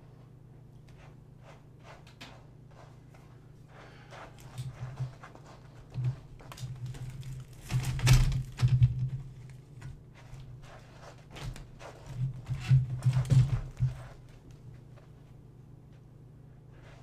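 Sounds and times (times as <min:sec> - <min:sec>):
knocks and thumps: 0:11.4 - 0:14.3.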